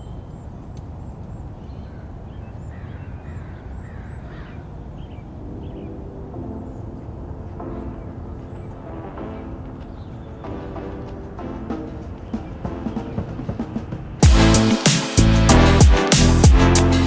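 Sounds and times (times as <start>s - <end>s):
birds chirping: 0.0s - 15.6s
music: 5.5s - 17.0s.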